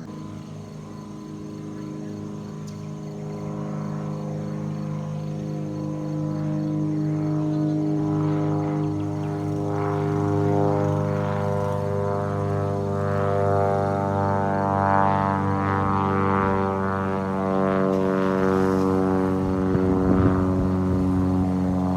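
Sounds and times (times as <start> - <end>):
propeller plane engine droning: 0.0 - 21.9.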